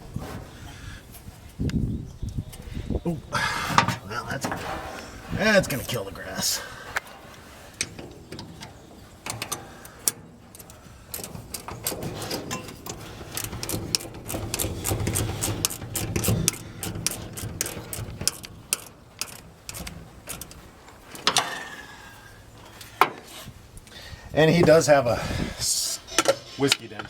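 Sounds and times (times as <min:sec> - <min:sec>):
hand tools clicking and rattling: 0:03.7 - 0:23.3, 0:26.0 - 0:27.0.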